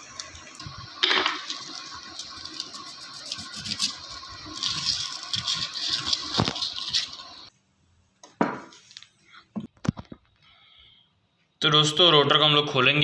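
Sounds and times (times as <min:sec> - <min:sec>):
emery paper rubbing metal: 0:01.4 - 0:07.5.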